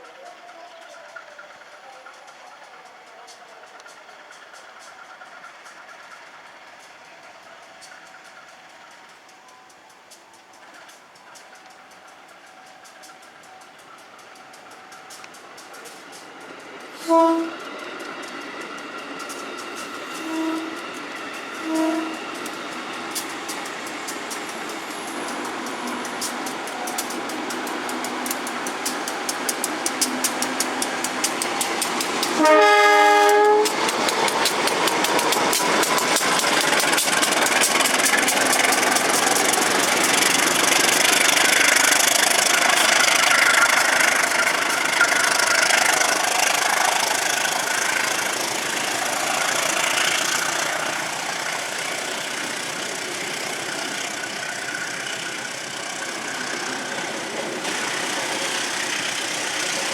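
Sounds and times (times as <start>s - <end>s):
train cars rumbling past: 0.0s - 59.9s
train wheels clicking over rail joints: 0.0s - 59.9s
train horn blast: 17.0s - 17.6s, 20.0s - 22.6s, 32.3s - 33.8s.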